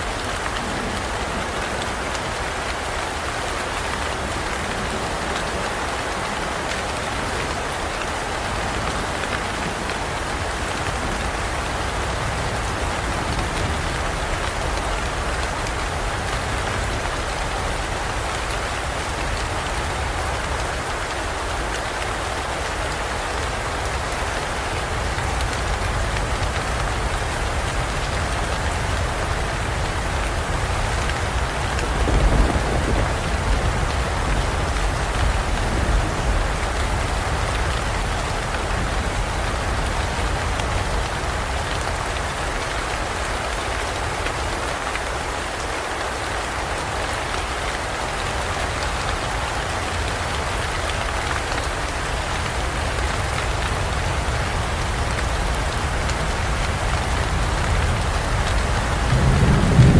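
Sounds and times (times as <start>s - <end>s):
dense rain falling: 0.0s - 59.9s
low rumble: 58.6s - 59.9s.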